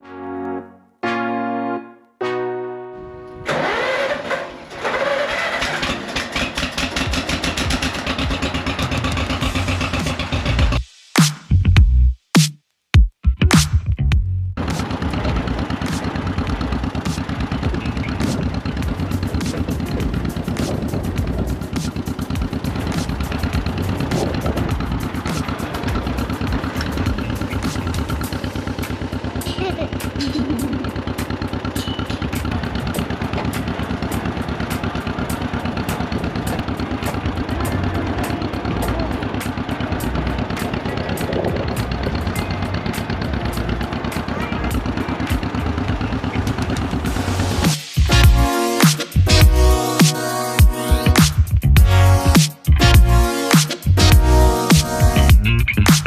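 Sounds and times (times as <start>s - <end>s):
keyboard chords: 0.0s - 4.0s, 14.6s - 56.0s
tractor engine cranking and running: 3.4s - 10.8s, 14.6s - 48.5s
sharp clicks and rattles: 3.5s - 10.8s, 14.6s - 49.5s.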